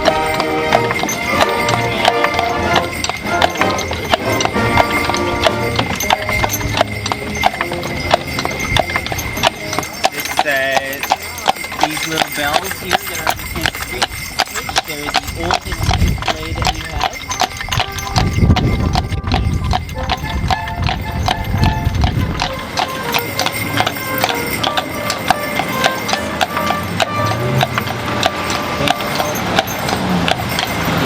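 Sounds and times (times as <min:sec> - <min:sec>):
horse hooves clip-clopping: 0:00.0 - 0:31.0
tune playing: 0:17.4 - 0:29.2.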